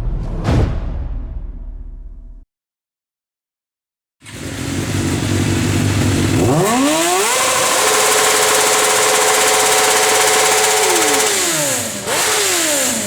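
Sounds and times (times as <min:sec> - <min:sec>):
music: 0:00.0 - 0:02.4
engine accelerating: 0:04.2 - 0:13.0.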